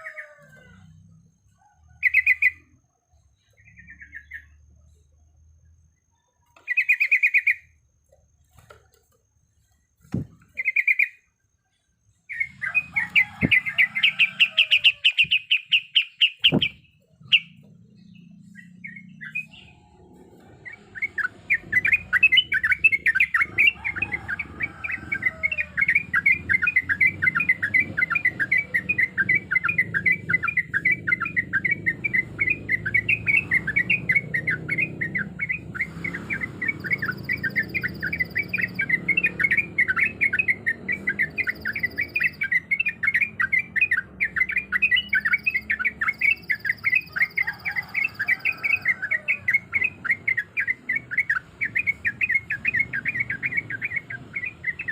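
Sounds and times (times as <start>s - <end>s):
bird chattering song: 0.0s - 7.8s, 8.5s - 54.9s.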